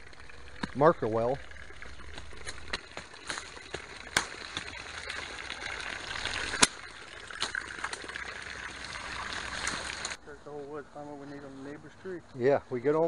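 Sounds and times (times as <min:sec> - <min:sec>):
water running from a spigot: 0:00.0 - 0:10.2.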